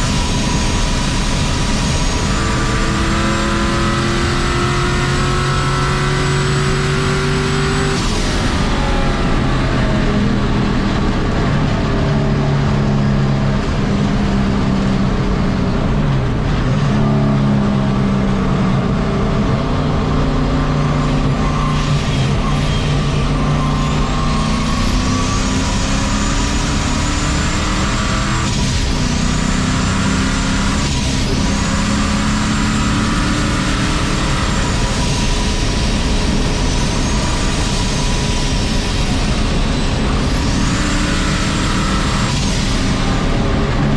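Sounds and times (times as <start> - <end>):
high turbo whine: 0.0 - 43.9
truck engine revving: 15.8 - 43.9.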